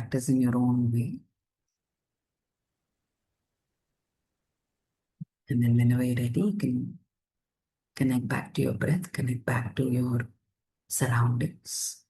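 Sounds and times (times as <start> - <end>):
person speaking calmly: 0.0 - 1.2, 5.2 - 7.0.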